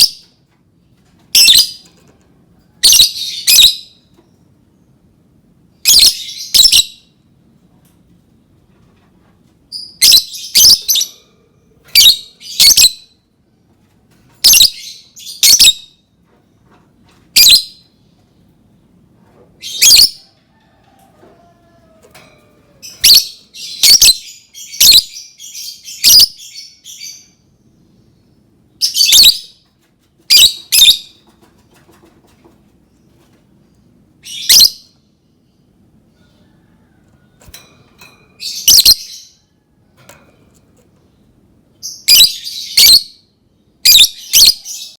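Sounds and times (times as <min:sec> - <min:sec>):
bird high-pitched calls: 0:02.8 - 0:04.0, 0:22.8 - 0:27.4, 0:28.8 - 0:29.6, 0:30.3 - 0:31.2, 0:34.2 - 0:35.0, 0:38.4 - 0:39.4, 0:41.8 - 0:43.2, 0:43.8 - 0:45.0.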